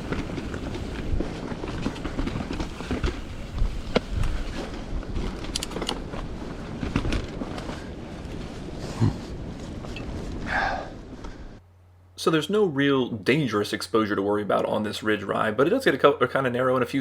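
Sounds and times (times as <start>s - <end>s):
bike clicks and rattles: 0.0s - 8.7s
bike tyre noise: 0.0s - 11.6s.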